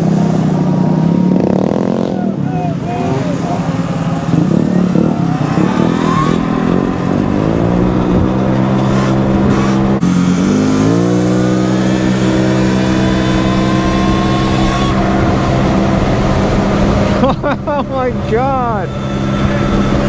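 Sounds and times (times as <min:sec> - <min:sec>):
scooter engines accelerating: 0:00.0 - 0:20.0
wind rumble on microphone: 0:12.5 - 0:18.2.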